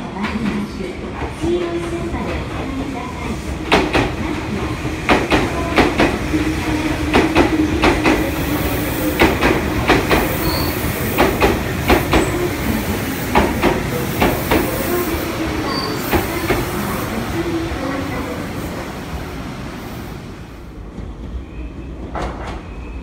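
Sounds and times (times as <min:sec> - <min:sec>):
train running hum: 0:00.0 - 0:23.0
train wheels clacking over rail joints: 0:03.4 - 0:15.0.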